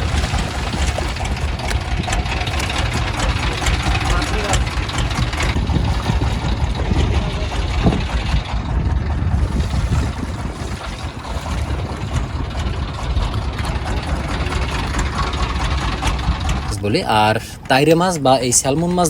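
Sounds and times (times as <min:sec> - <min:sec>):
boat engine rumbling: 0:00.0 - 0:19.0.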